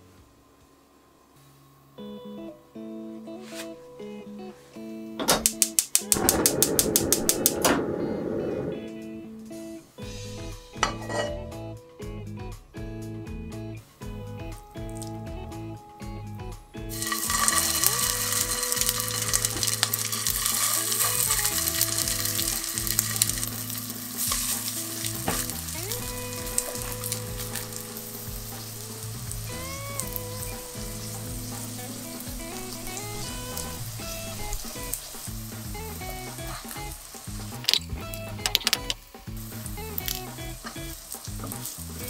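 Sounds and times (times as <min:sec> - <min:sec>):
patties sizzling in oil: 0:16.9 - 0:42.0.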